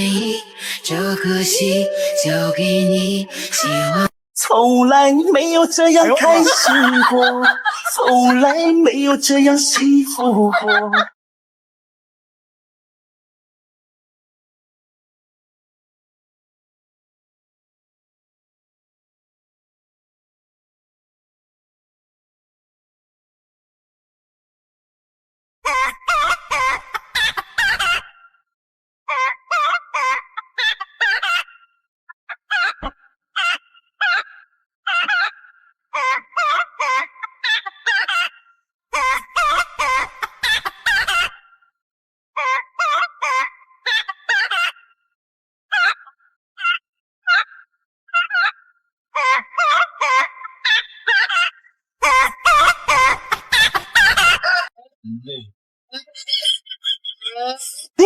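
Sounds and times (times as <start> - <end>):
wavering clucking calls: 0.1 - 4.1, 56.1 - 57.4
hen-like squawking cackle: 1.1 - 4.1, 6.1 - 8.6, 10.4 - 11.1, 25.7 - 28.4, 29.1 - 41.6, 42.4 - 45.0, 45.7 - 54.7, 56.0 - 57.4.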